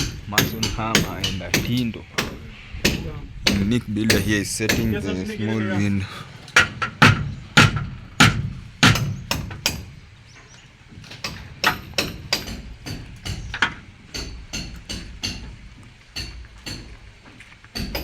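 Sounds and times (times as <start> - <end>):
hammer striking chisel on masonry: 0.0 - 5.2, 6.6 - 10.0, 11.2 - 17.0, 17.7 - 18.0.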